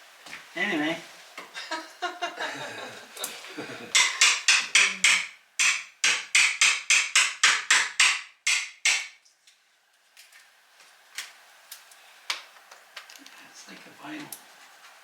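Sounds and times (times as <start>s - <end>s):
hammer tapping rapidly: 3.9s - 9.1s.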